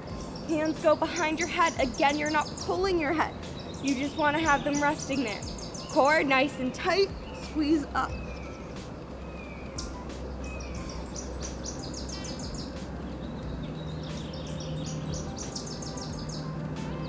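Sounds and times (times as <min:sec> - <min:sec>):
low outdoor hum: 0:00.0 - 0:17.0
songbird trilling: 0:00.0 - 0:17.0.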